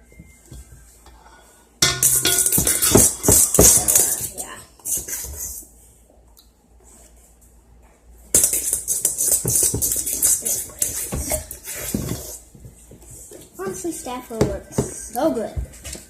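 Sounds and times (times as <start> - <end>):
utensil stirring slime in a bowl: 8.4 - 12.4.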